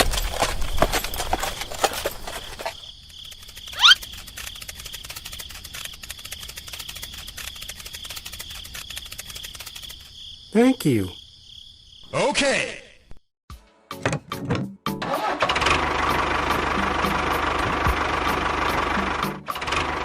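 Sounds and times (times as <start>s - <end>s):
irregular clicks and patter: 0.0s - 10.1s
high insect trill: 0.0s - 12.2s.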